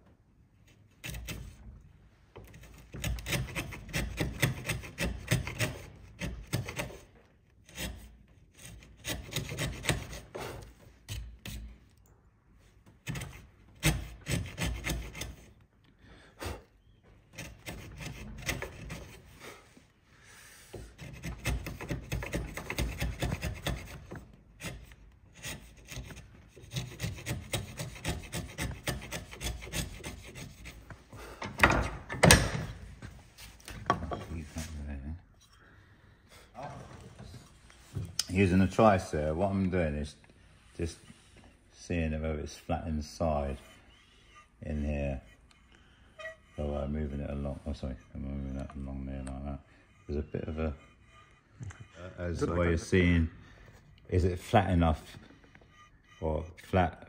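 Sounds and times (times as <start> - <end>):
chisel scraping wood: 0.6 - 12.0, 12.7 - 15.7, 16.7 - 19.8, 20.6 - 35.8, 36.4 - 57.0.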